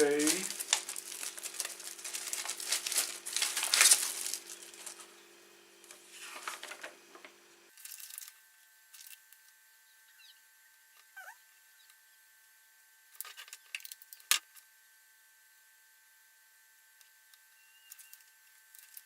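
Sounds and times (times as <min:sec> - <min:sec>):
packaging crinkling: 0:00.0 - 0:05.2, 0:05.8 - 0:07.0.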